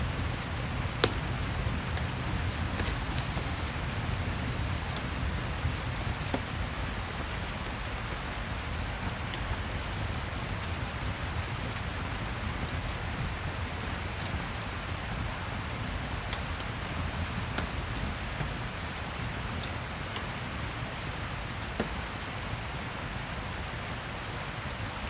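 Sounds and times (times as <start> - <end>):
steady rain: 0.0 - 25.0
fireplace crackling: 0.1 - 5.4.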